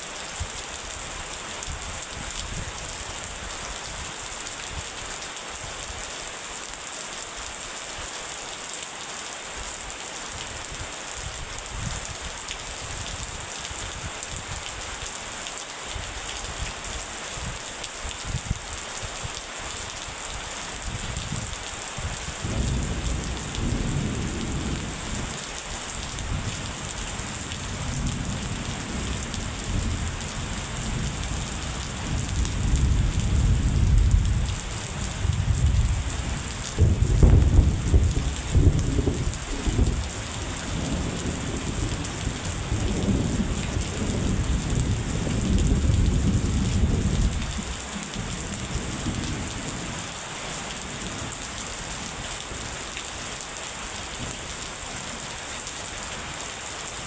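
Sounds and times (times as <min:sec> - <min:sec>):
rain falling: 0:00.0 - 0:57.0
rolling thunder: 0:22.4 - 0:47.8.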